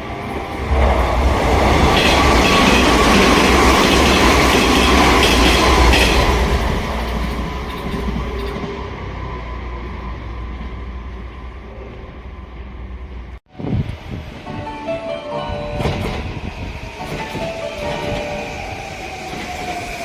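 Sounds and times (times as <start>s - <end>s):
train rumble: 0.0s - 20.0s
wheels clacking over rail joints: 0.1s - 8.8s.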